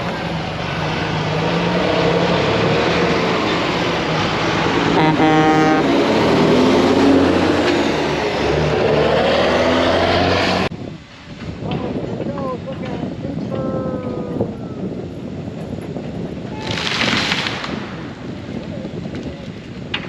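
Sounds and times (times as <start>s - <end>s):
heavy diesel machinery running: 0.0s - 10.7s
horn-like tone: 4.9s - 5.9s.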